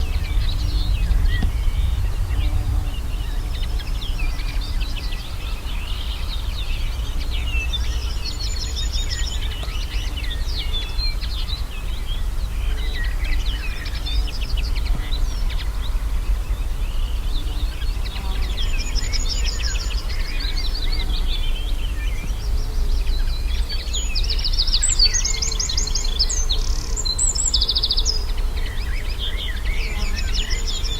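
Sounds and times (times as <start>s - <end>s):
low rumble: 0.0s - 8.6s
birds singing trills: 0.0s - 30.9s.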